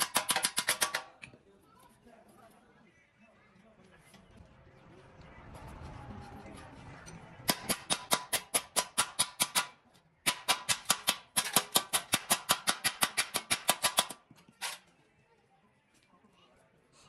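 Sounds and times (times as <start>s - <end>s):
hammering on metal: 0.0s - 1.2s, 7.4s - 14.2s.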